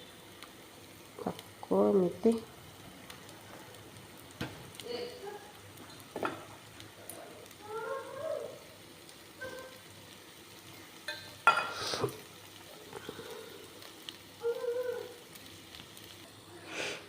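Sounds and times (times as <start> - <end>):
faint sizzle: 0.0 - 17.0
spoon scraping a pan: 11.1 - 12.2.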